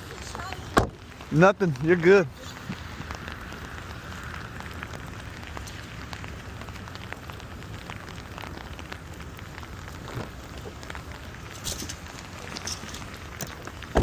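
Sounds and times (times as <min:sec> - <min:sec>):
hard rain falling: 0:00.0 - 0:14.0.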